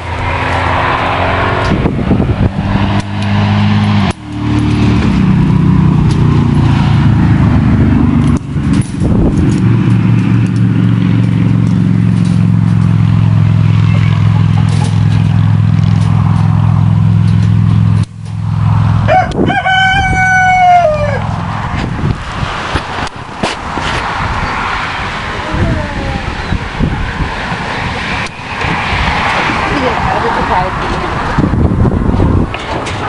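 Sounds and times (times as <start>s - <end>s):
low motor hum: 0.0s - 33.0s
rooster crowing: 19.0s - 21.3s.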